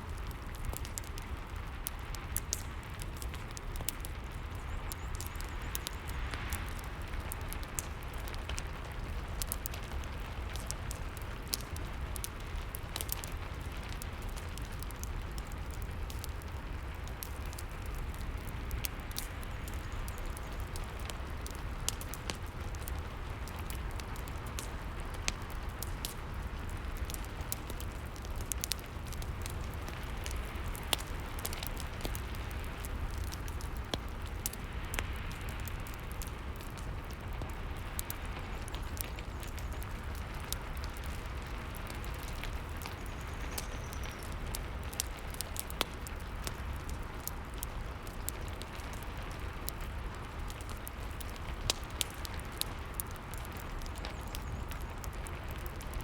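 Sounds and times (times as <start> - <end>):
burning wood crackling: 0.0 - 56.0
rain hiss: 0.0 - 56.0.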